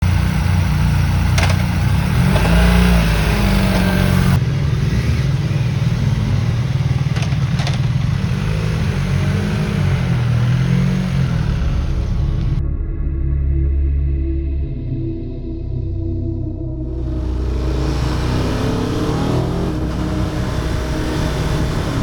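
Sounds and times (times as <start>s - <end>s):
motorcycle engine revving: 0.0s - 12.6s, 17.0s - 22.0s.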